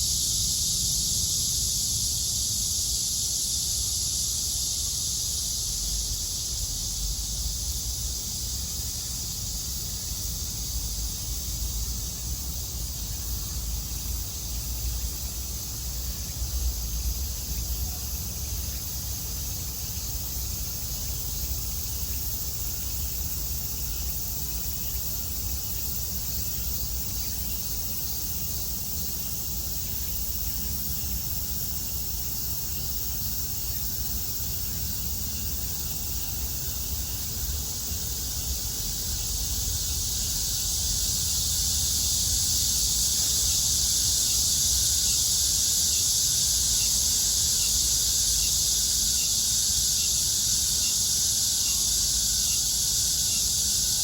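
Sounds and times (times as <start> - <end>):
cicadas buzzing: 0.0 - 54.0.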